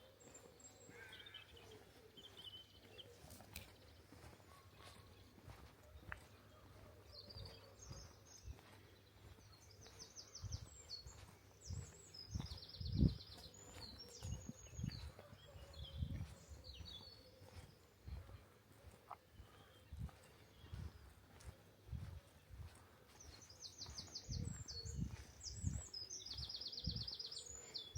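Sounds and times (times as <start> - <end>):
songbird trilling and chirping: 6.7 - 18.3, 19.4 - 27.9.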